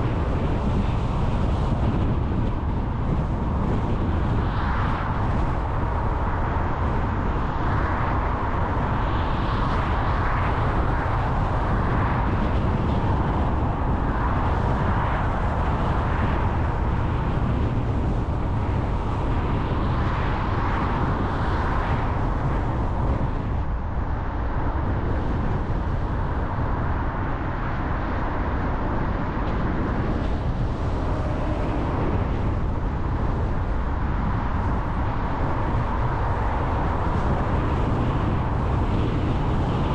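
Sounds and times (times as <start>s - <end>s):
car road and engine rumble: 0.0s - 39.9s
rushing noise: 26.2s - 39.9s.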